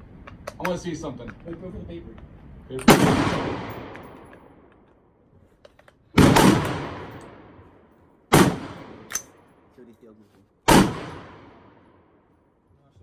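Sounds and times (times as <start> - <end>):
rifle shots with echo: 2.8 - 4.7, 6.2 - 9.6, 10.7 - 12.1.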